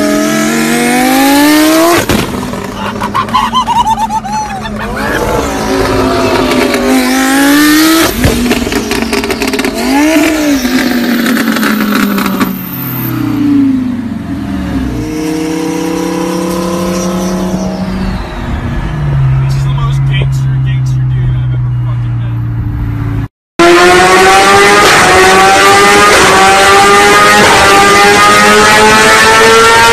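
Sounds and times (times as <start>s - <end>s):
car engine revving: 0.0s - 29.9s
exhaust crackling pops: 1.9s - 2.8s, 8.0s - 12.5s.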